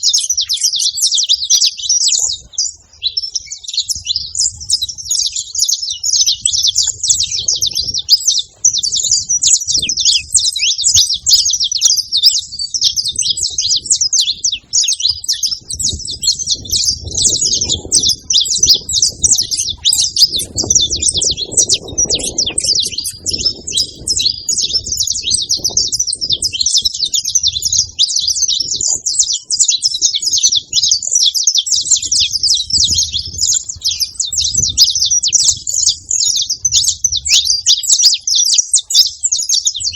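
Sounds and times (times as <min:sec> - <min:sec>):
finch singing chirps and trills: 0:00.0 - 0:39.9.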